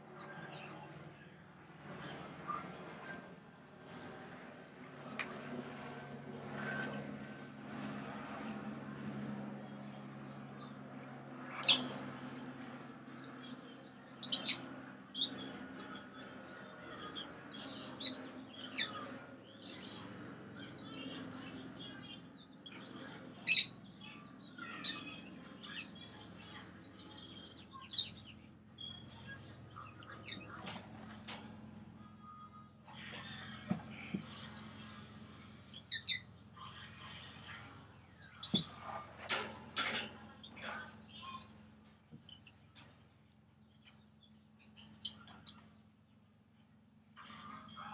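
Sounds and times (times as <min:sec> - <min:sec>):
parrots chirping and twittering: 0:11.4 - 0:45.9, 0:47.2 - 0:47.9.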